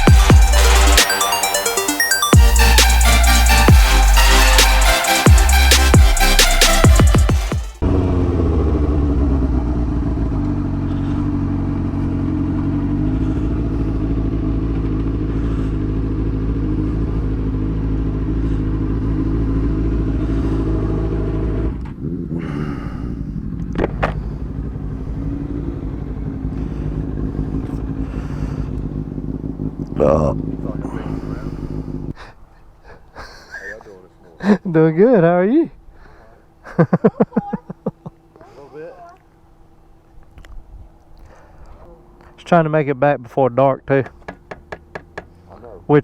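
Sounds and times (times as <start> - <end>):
motorcycle engine running: 3.4 - 32.1.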